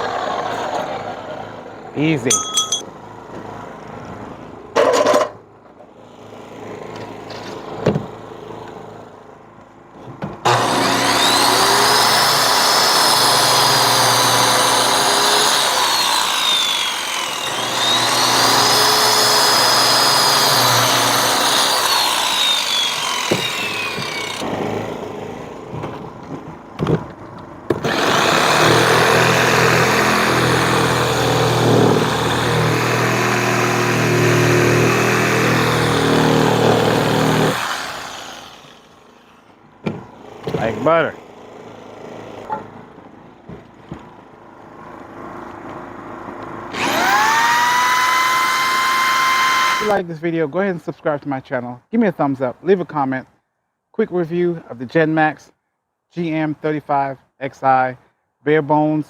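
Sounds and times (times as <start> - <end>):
electric chop saw cutting pipe: 10.4 - 25.3, 27.7 - 39.3, 46.7 - 50.0
generator humming: 10.5 - 25.3.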